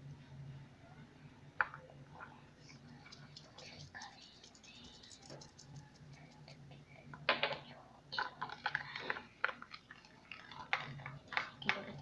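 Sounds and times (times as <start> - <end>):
low steady hum: 0.0 - 12.0
slime crackling as mixed by hand: 8.1 - 12.0.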